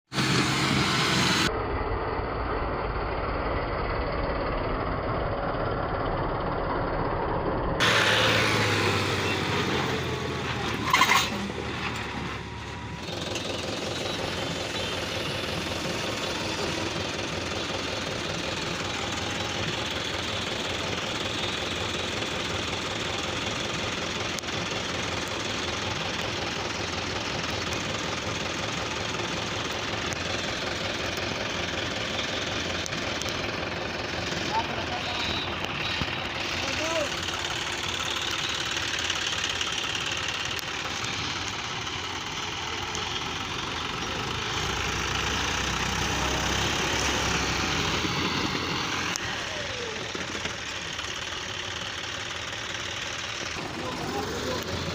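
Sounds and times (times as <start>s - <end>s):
diesel tractor engine knocking: 11.4s - 54.9s.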